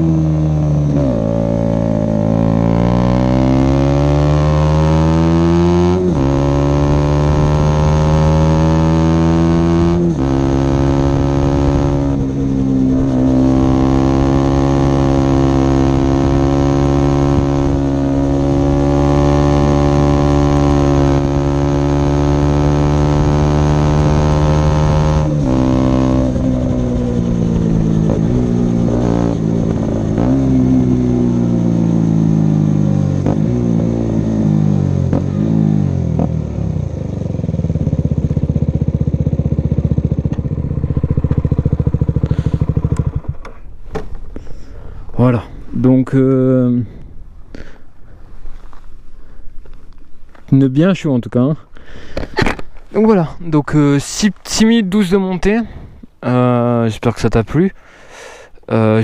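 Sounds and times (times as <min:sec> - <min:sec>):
motorcycle engine revving: 0:00.0 - 0:45.3.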